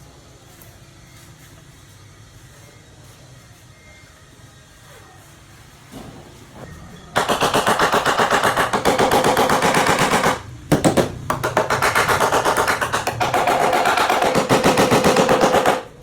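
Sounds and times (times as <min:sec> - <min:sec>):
rapid tapping on sheet metal: 0:07.2 - 0:16.0.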